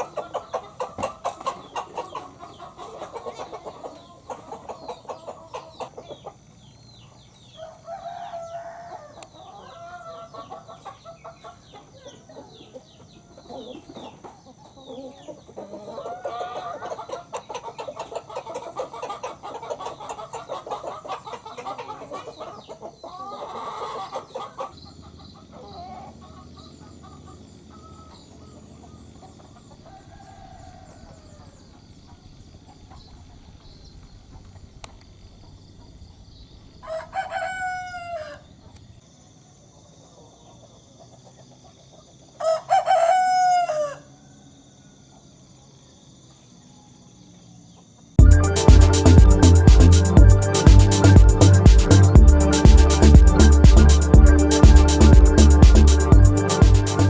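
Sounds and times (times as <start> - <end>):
chickens clucking: 0.0 - 33.4, 39.9 - 44.0, 47.8 - 57.0
rooster crowing: 7.5 - 10.6, 29.8 - 31.6, 36.8 - 38.4, 42.4 - 45.0.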